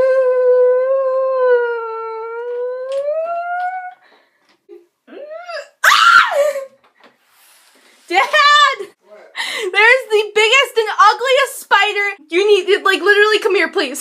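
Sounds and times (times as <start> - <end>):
girl whimpering: 0.0 - 4.0, 5.1 - 5.8
girl crying shrilly: 5.1 - 6.7
girl whining in fright: 5.1 - 6.7.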